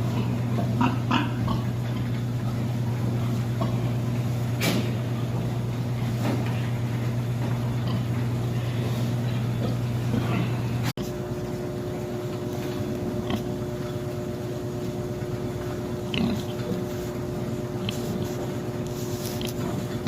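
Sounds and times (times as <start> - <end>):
pigs grunting and squealing: 0.0 - 5.4, 7.6 - 10.9, 15.9 - 17.0
low mechanical hum: 0.0 - 20.0.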